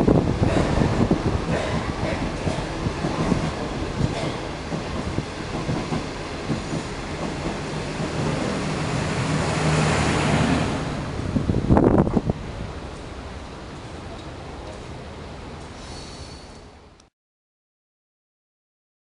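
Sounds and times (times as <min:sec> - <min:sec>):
train wheels clacking over rail joints: 0:00.4 - 0:08.7.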